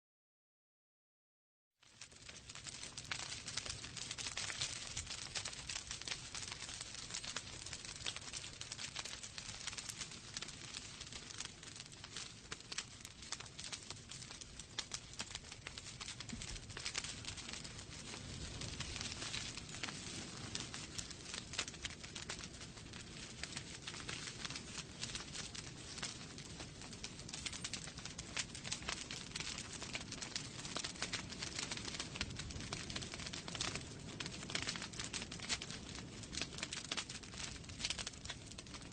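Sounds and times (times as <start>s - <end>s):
wood fire crackling: 1.8s - 38.9s.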